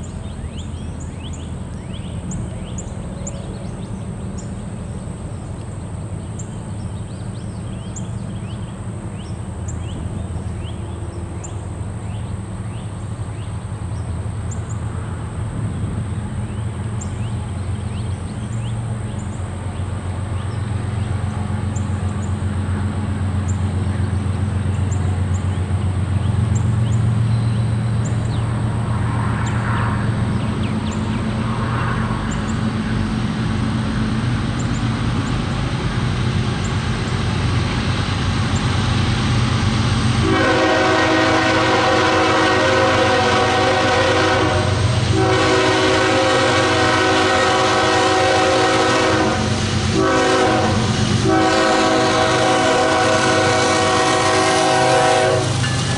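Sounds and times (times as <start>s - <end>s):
diesel locomotives droning: 0.0s - 55.9s
locomotive horn blast: 40.2s - 55.9s.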